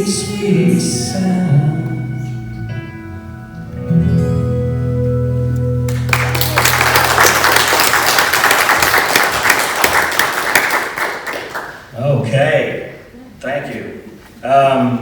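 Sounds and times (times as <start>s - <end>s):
congregation applauding: 5.9s - 11.9s.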